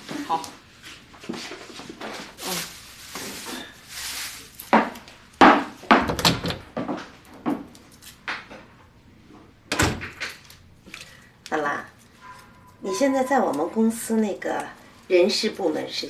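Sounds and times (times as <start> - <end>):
wooden knocks and thuds: 4.8 - 7.0.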